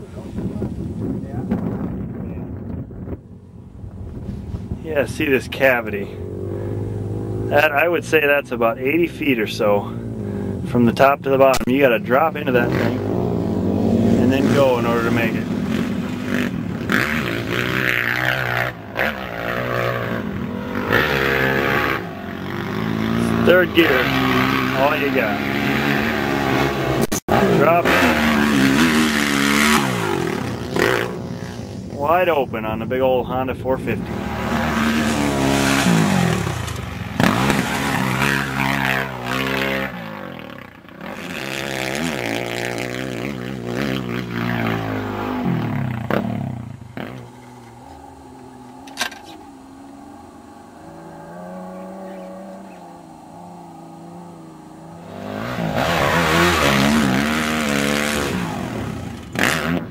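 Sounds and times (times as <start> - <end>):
wind rush: 0.0 - 5.4
motocross bike engine revving: 4.1 - 59.9.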